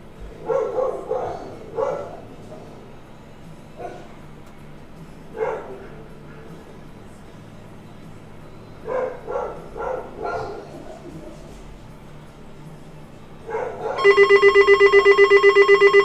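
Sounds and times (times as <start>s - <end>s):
dog barking: 0.3s - 3.0s, 3.8s - 4.2s, 5.4s - 6.1s, 8.8s - 11.4s, 13.4s - 16.0s
faint low hum: 14.0s - 16.0s.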